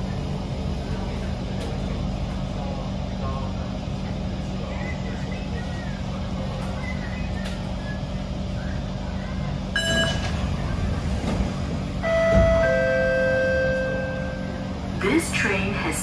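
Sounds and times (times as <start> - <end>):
metro train car hum and rumble: 0.0 - 16.0
brief electronic tone: 9.8 - 10.3, 12.0 - 14.7.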